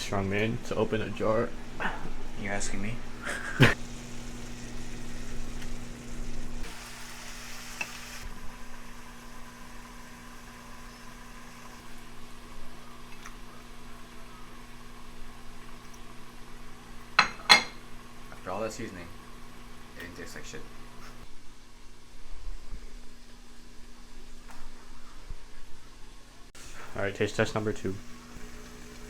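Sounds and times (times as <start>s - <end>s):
food sizzling in a frying pan: 3.6s - 18.3s, 26.6s - 29.0s.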